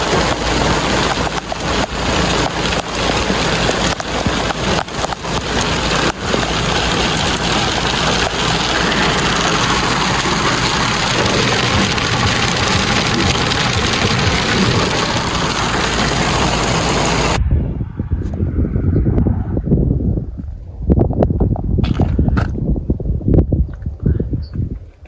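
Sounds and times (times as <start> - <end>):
heavy rain pelting a car: 0.0 - 17.4.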